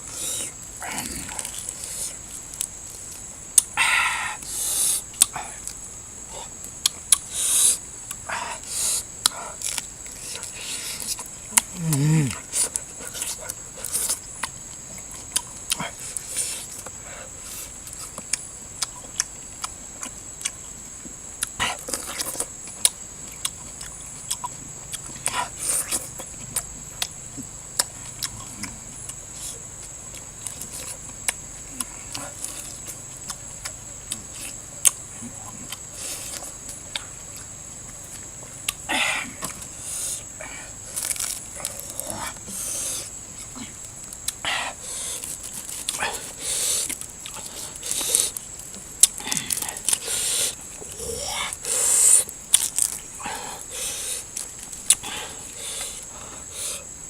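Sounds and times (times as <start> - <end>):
person chewing and smacking: 8.0 - 8.3, 17.6 - 57.0.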